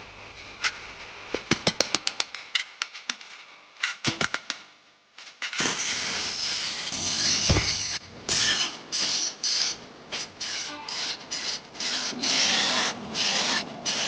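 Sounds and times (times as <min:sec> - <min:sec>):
abrasive rasping on steel blade: 0:10.4 - 0:14.0.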